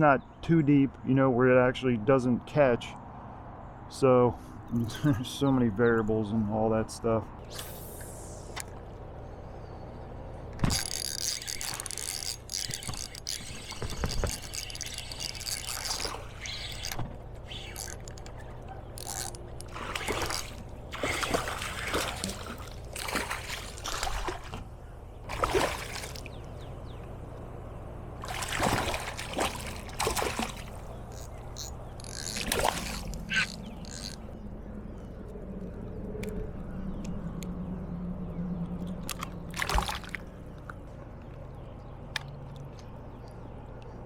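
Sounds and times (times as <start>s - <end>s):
water trickling and splashing: 10.6s - 27.2s, 28.1s - 34.3s, 38.9s - 40.8s.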